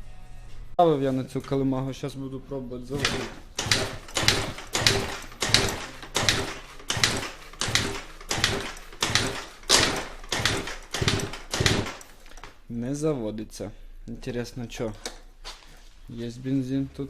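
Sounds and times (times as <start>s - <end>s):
scooter engine cranking without firing: 2.9s - 12.5s.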